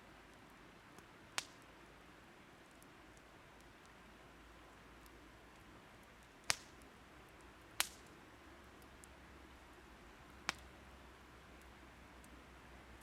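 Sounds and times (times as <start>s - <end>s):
quiet steady hiss: 0.0s - 13.0s
burning wood popping: 0.9s - 1.7s, 5.5s - 9.7s, 10.4s - 10.7s.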